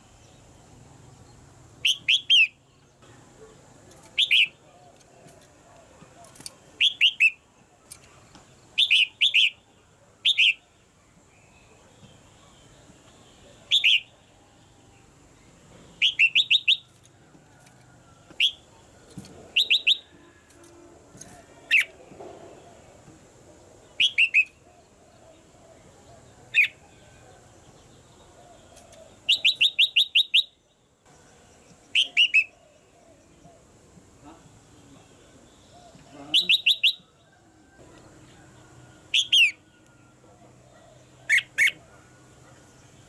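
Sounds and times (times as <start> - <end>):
bulbul chirping calls: 1.8 - 2.7, 4.0 - 5.1, 6.2 - 8.1, 8.8 - 10.7, 12.0 - 14.2, 15.9 - 17.0, 18.4 - 18.8, 19.5 - 20.2, 21.7 - 22.0, 23.8 - 27.1, 28.2 - 30.6, 31.8 - 33.7, 34.3 - 37.2, 39.1 - 40.1, 40.9 - 41.9.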